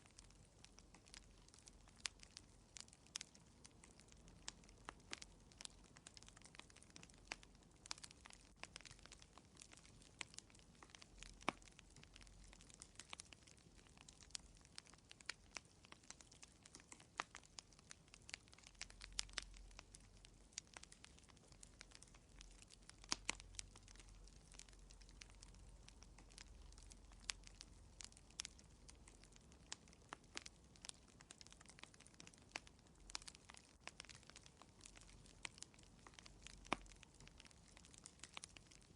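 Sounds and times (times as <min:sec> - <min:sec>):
fire crackling: 0:00.0 - 0:38.9.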